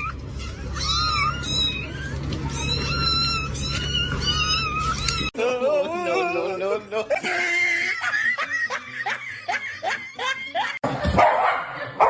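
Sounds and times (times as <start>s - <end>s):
cat meowing: 0.0s - 5.3s.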